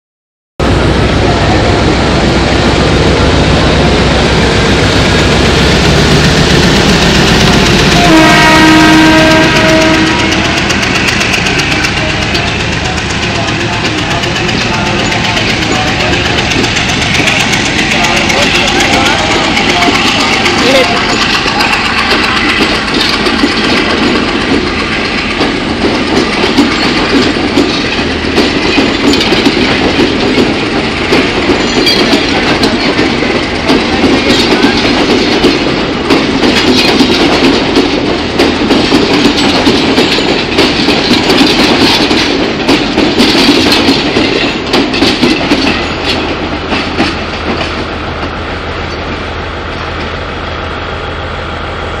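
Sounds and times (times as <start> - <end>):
train rumble: 0.6 - 52.0
wheels clattering over rail joints: 8.8 - 50.2.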